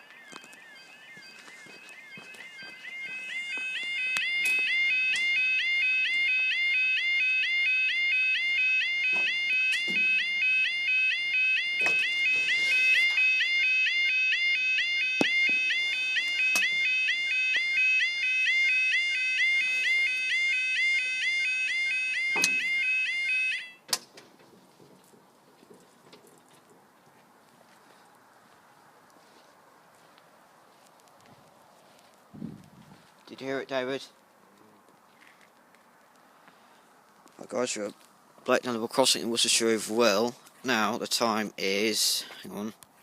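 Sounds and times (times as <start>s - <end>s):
level crossing alarm warbling: 0.0s - 23.8s.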